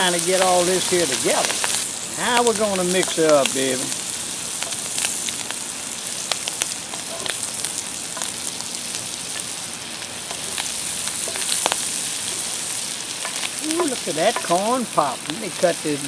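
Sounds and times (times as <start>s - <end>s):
food sizzling in a pan: 0.0s - 16.0s
pan stirring ticks: 1.3s - 3.8s, 13.1s - 15.4s.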